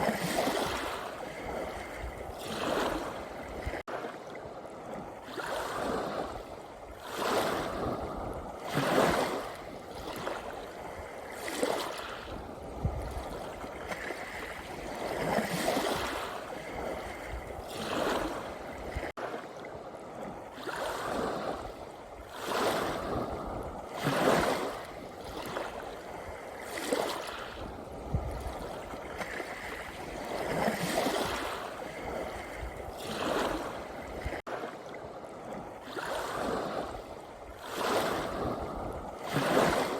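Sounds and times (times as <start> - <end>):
small sea waves breaking: 0.0 - 39.9.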